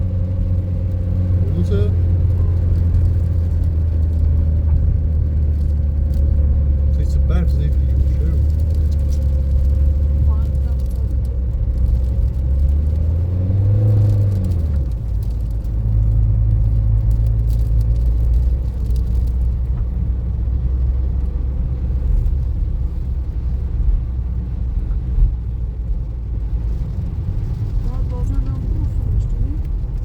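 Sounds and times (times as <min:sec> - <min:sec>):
car engine drone: 0:00.0 - 0:30.0
road rumble: 0:00.0 - 0:30.0.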